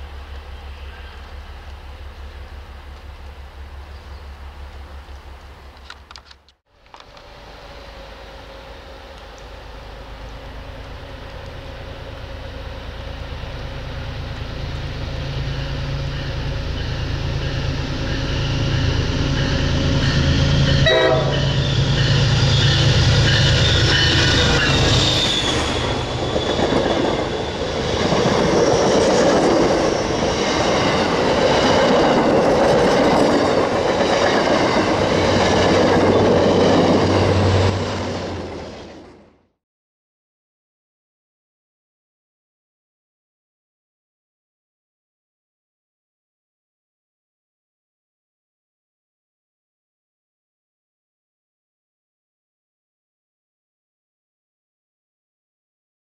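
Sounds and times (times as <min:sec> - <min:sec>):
diesel locomotive engine rumble: 0:00.0 - 0:39.6
train horn: 0:15.0 - 0:26.0.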